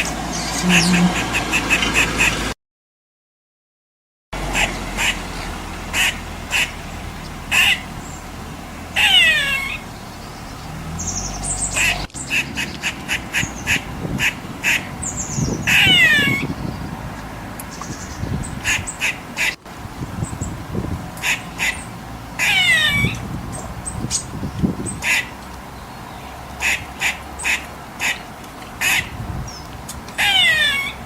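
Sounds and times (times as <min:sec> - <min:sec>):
harsh falling squirrel call: 0:00.0 - 0:02.5, 0:04.4 - 0:16.8, 0:17.8 - 0:19.6, 0:21.2 - 0:24.3, 0:24.9 - 0:25.3, 0:28.8 - 0:29.2, 0:30.2 - 0:31.0
squirrel alarm chirps: 0:09.0 - 0:13.9, 0:15.0 - 0:16.7, 0:21.4 - 0:23.2, 0:30.2 - 0:31.0.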